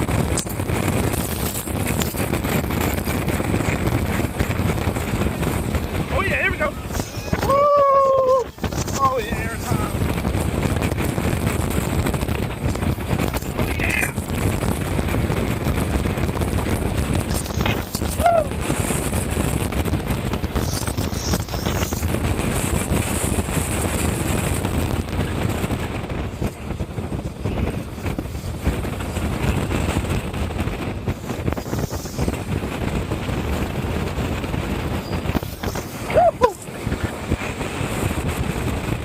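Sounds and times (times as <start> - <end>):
roller coaster train rumbling: 0.0 - 39.0
wind rushing over microphone: 0.0 - 39.0
person yelping: 7.1 - 8.5, 36.1 - 36.6.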